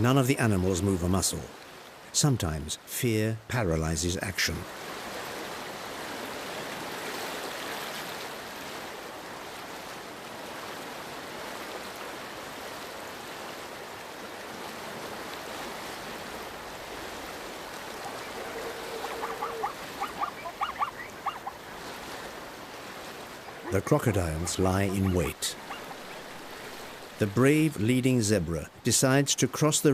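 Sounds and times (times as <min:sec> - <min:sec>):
river water rushing: 0:04.6 - 0:29.9
short high animal calls: 0:17.8 - 0:21.7, 0:23.4 - 0:26.2.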